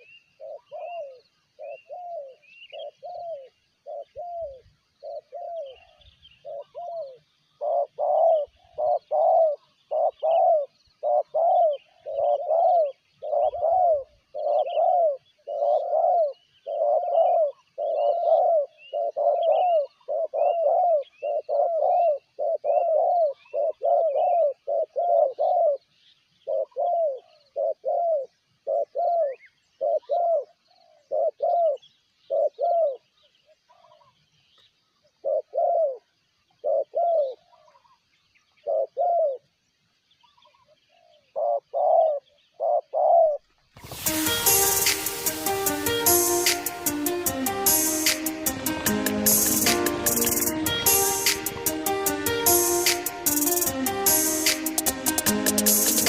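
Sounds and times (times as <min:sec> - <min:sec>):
dove cooing: 0:00.0 - 0:05.8, 0:06.4 - 0:25.8, 0:26.5 - 0:33.0, 0:35.2 - 0:36.0, 0:36.6 - 0:37.8, 0:38.6 - 0:39.4, 0:41.0 - 0:43.4
small birds chirping: 0:00.0 - 0:56.0.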